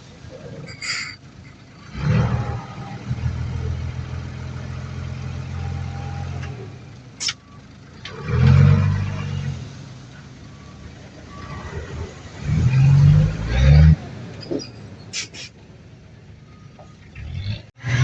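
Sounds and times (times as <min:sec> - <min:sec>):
heavy diesel engine revving: 0:00.0 - 0:15.6, 0:16.5 - 0:18.0
high-pitched squeak: 0:00.7 - 0:01.2.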